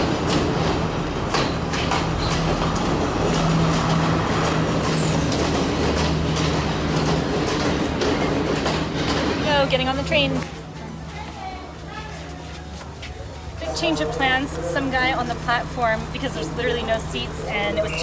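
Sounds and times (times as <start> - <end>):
train wheels clicking over rail joints: 0.0 - 10.4
train engine drone: 0.0 - 18.0.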